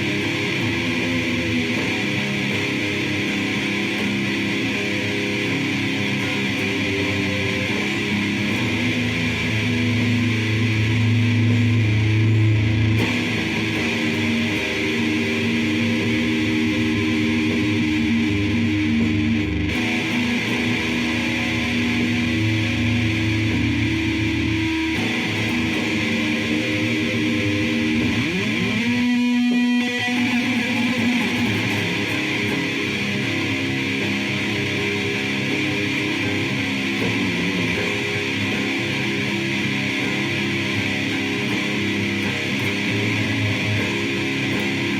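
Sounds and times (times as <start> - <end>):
distorted electric guitar droning: 0.0 - 44.9.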